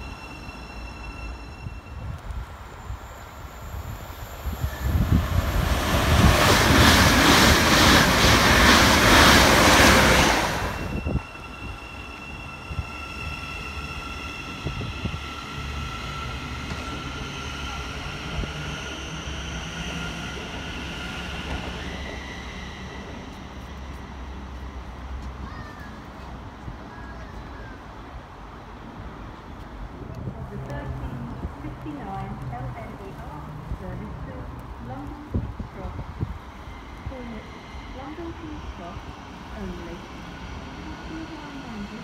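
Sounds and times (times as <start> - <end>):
electric train whine: 0.0 - 25.4, 34.5 - 42.0
train wheels rushing on rail: 0.0 - 42.0.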